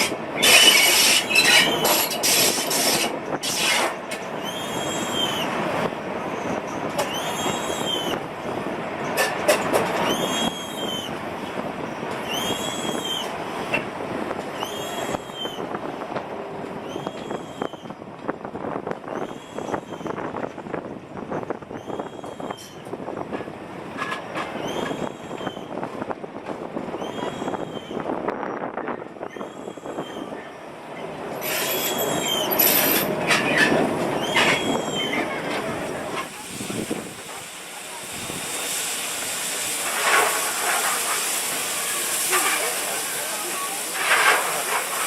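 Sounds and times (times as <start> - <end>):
railway wheels squealing: 0.0 - 8.3, 9.0 - 11.2, 11.8 - 13.8, 14.5 - 15.8, 16.8 - 18.0, 19.0 - 20.4, 21.3 - 22.9, 24.0 - 25.8, 26.9 - 36.9
wheels rattling on track: 0.0 - 45.0.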